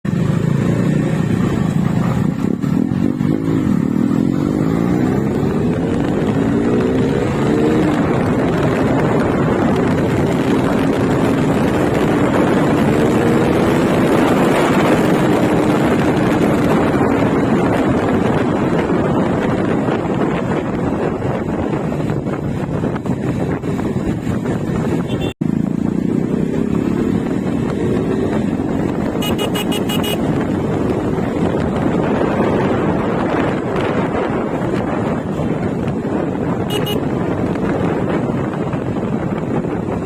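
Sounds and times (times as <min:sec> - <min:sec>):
motorcycle engine accelerating: 0:00.0 - 0:40.0
wind and road rush: 0:00.0 - 0:40.0.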